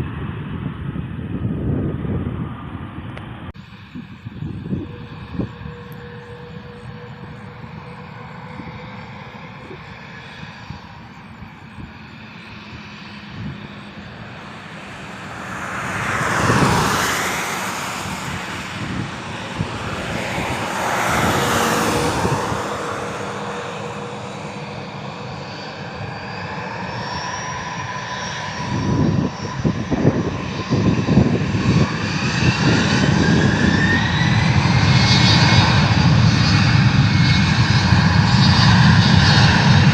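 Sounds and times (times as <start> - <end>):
heavy rumble: 0.0 - 11.1, 12.7 - 26.0
airplane passing overhead: 0.0 - 39.9
rising whine: 1.0 - 39.9.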